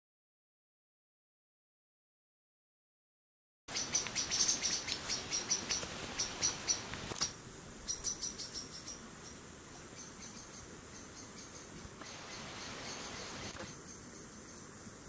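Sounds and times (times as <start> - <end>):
small birds chirping: 3.7 - 14.8.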